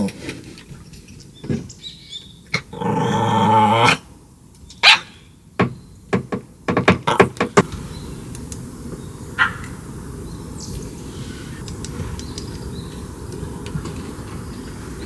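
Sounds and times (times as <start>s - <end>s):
dog drawn-out bark: 4.8s - 5.2s, 9.4s - 9.7s.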